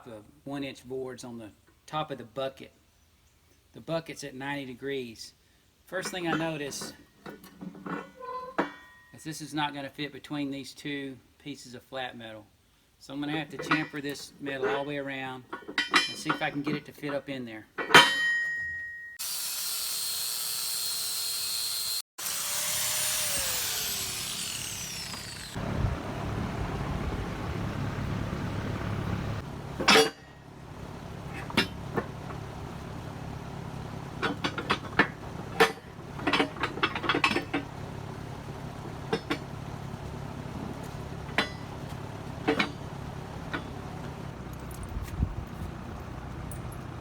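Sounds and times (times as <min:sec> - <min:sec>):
angle grinder whine: 0:19.2 - 0:44.3
low steady hum: 0:23.2 - 0:47.0.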